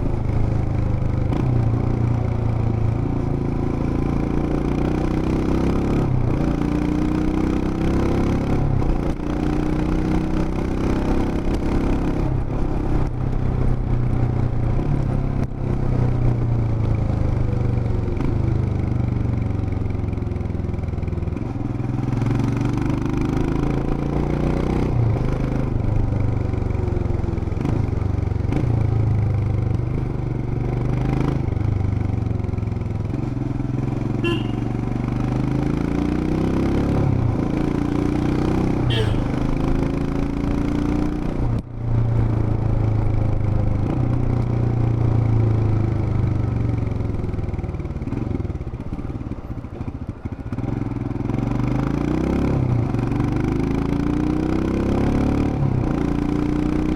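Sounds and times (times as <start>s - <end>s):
motorcycle engine revving: 27.5s - 41.5s.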